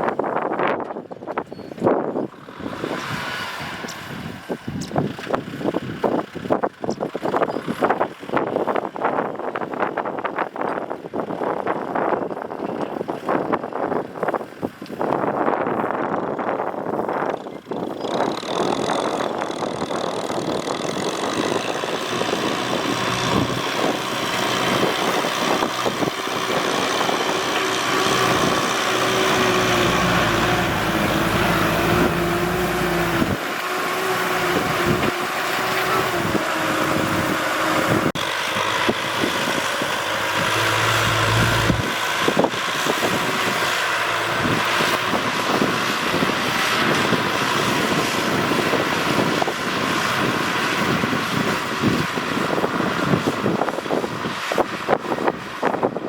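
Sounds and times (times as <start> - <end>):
tractor engine running: 2.1 - 9.1, 16.0 - 56.0
deeper engine note: 20.3 - 45.3.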